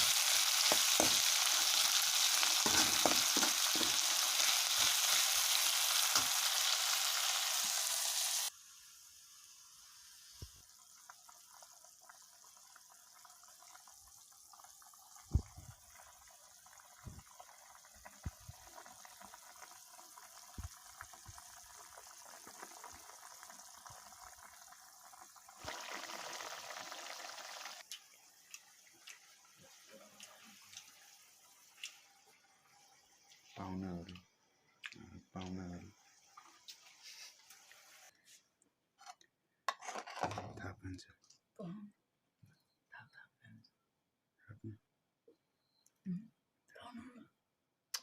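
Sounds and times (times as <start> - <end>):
meat sizzling in a pan: 0.0 - 33.8.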